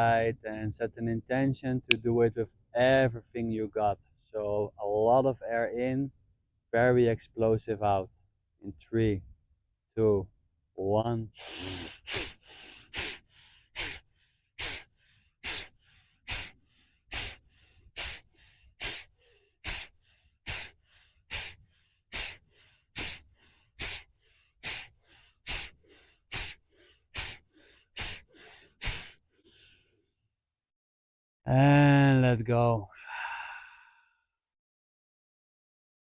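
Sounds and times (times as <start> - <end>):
forceful rhythmic breathing: 11.4 - 30.0, 32.9 - 34.0.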